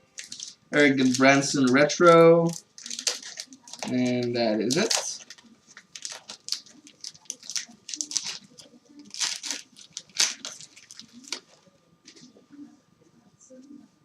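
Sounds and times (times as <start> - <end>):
foil wrapper tearing and crinkling: 0.2 - 1.6, 2.5 - 11.6.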